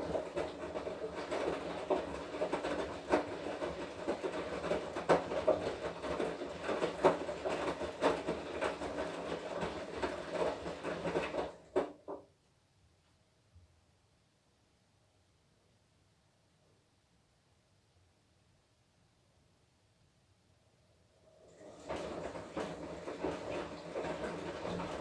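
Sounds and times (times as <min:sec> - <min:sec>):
laundry knocking in drum: 0:00.0 - 0:12.3
washing machine drum turning: 0:21.5 - 0:25.0.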